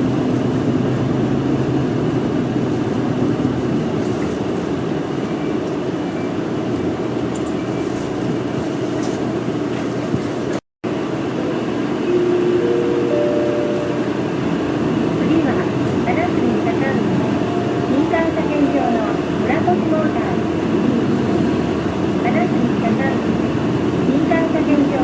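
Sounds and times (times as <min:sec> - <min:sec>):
bus engine and road noise: 0:00.0 - 0:25.0
steady tones: 0:11.2 - 0:23.2.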